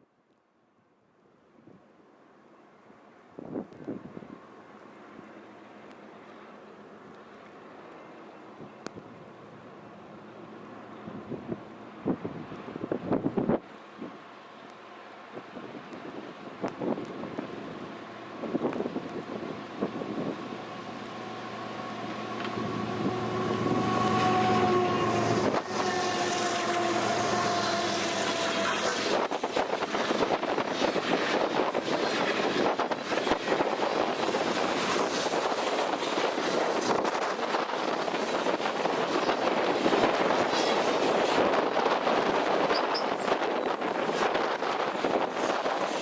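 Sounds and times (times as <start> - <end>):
locomotive chime horn blasts: 21.2 - 29.1.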